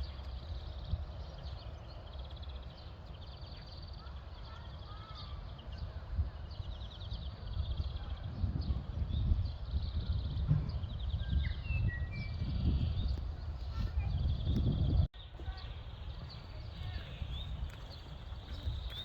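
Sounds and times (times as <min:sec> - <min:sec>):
small birds trilling: 0:00.0 - 0:19.0
wind on microphone: 0:04.9 - 0:19.0
footsteps on garden path: 0:15.3 - 0:19.0.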